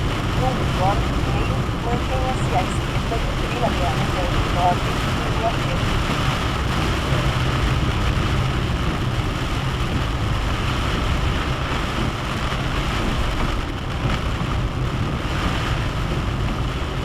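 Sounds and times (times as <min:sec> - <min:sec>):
car engine hum: 0:00.0 - 0:17.0
rain on car body: 0:00.0 - 0:17.0
tyres on wet road: 0:00.0 - 0:17.0.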